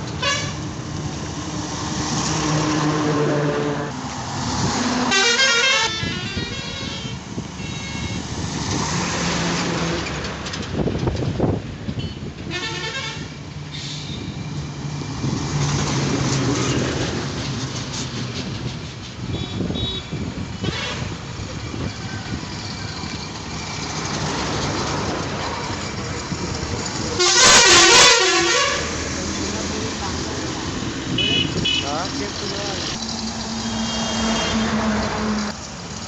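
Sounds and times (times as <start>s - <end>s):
road traffic rumbling: 0.0s - 36.0s
loud horn blast: 0.2s - 0.6s, 5.0s - 8.2s, 12.0s - 13.3s, 27.2s - 29.1s, 31.1s - 31.9s, 33.6s - 35.4s
car horn toots: 5.1s - 8.2s, 12.0s - 13.3s, 19.3s - 21.0s, 27.2s - 28.9s, 31.2s - 32.0s, 33.6s - 34.8s.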